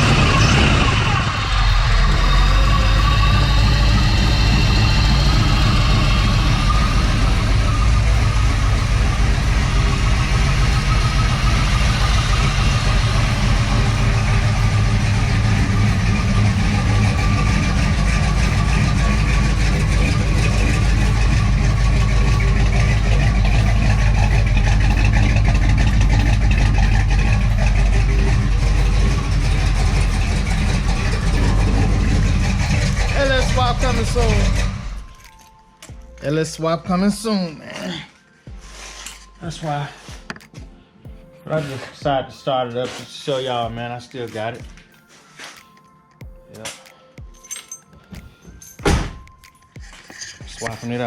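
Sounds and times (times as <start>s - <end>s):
car engine idling: 0.0s - 35.2s.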